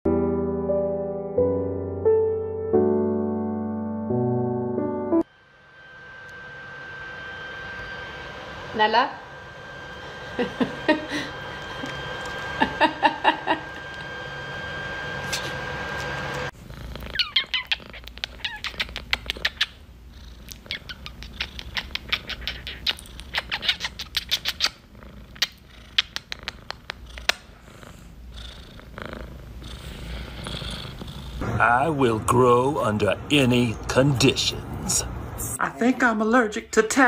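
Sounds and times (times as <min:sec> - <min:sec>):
cat purring: 0:16.5 - 0:31.5.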